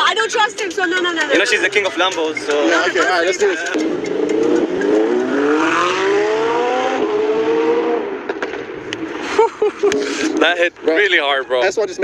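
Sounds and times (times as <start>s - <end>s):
car engine accelerating hard: 2.6s - 10.6s.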